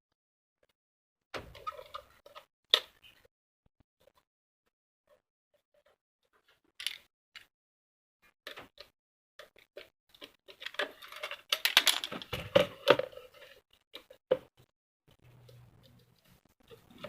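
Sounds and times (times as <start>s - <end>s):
plastic parts clicking and rattling: 6.4s - 7.5s, 8.4s - 14.5s.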